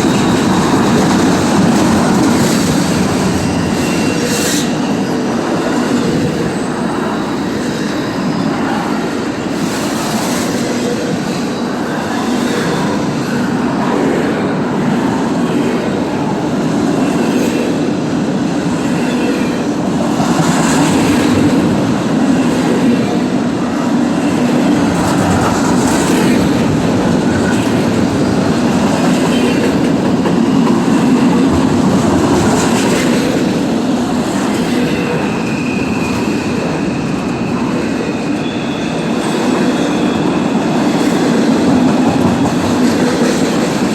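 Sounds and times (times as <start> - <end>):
train wheels clattering over rails: 0.0 - 43.9
high wheel squeal: 34.9 - 41.0.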